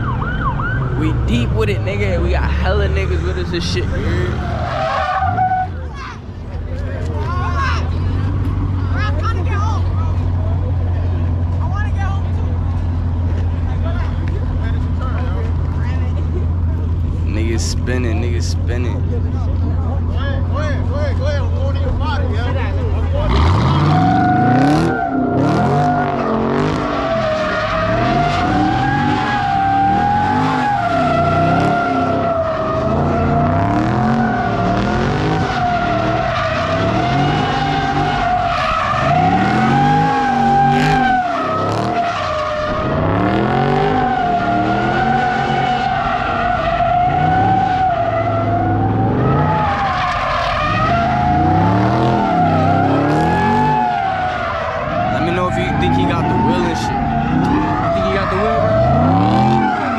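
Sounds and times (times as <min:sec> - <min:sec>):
car engine revving: 0:00.0 - 0:59.9
tyres squealing: 0:23.2 - 0:59.9.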